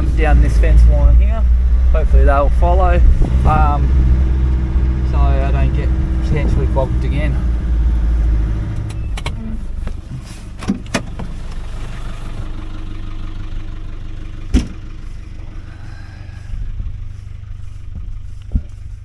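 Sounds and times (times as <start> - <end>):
vehicle engine running: 0.0 - 19.0
sharp knocks and clunks: 14.5 - 14.9.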